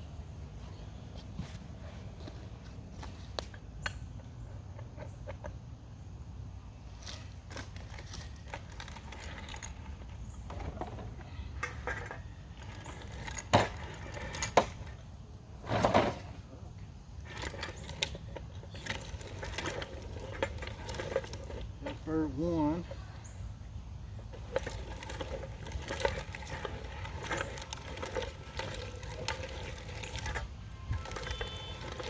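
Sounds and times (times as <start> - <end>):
meat grinder grinding: 24.6 - 32.0.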